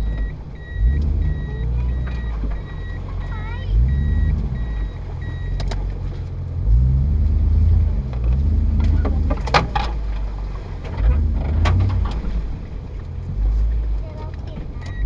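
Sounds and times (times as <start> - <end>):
reversing beep: 0.0 - 5.6
car engine revving: 0.0 - 15.0.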